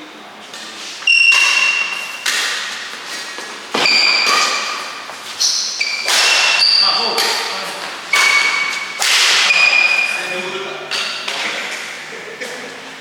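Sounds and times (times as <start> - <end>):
rackets hitting shuttlecock: 1.1 - 3.0, 3.7 - 7.5, 8.1 - 10.1.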